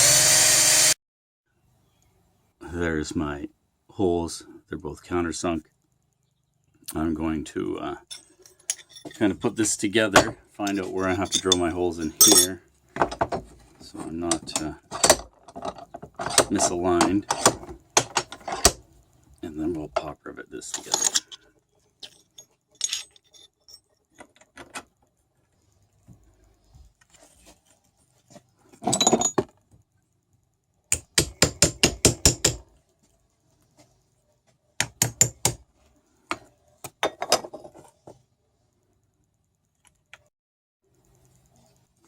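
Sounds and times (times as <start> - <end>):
metal parts clinking: 8.1 - 9.6, 10.7 - 13.4, 14.3 - 18.8, 20.6 - 24.4, 28.7 - 29.6.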